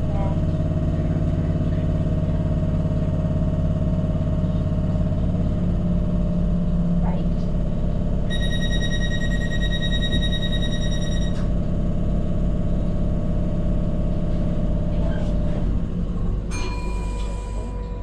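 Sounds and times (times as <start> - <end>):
electric train drive hum: 0.0 - 18.0
lower tone: 16.1 - 18.0
high-pitched tone: 16.5 - 18.0.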